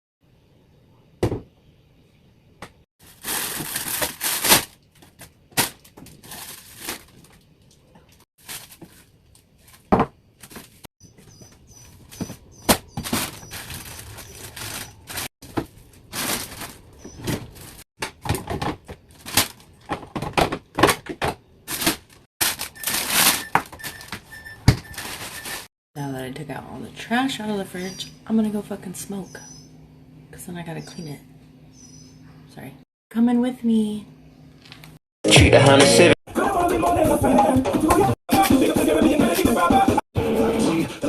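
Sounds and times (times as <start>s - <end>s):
plastic rustling: 3.0s - 20.2s, 21.7s - 25.7s.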